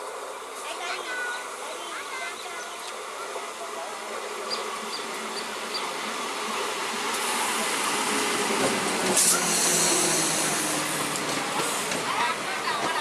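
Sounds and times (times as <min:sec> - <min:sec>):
electric train humming on rails: 0:00.0 - 0:13.0
hiss: 0:07.1 - 0:12.1.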